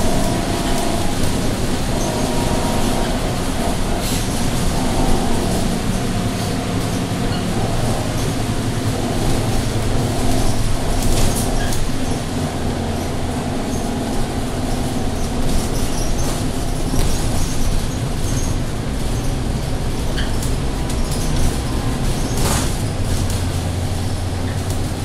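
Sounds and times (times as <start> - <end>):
bus diesel engine droning: 0.0 - 25.0.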